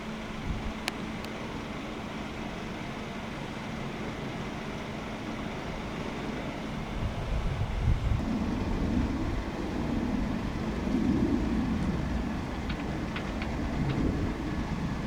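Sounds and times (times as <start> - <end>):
jet engines rumbling: 0.0 - 15.0
faint clicks: 11.8 - 14.7.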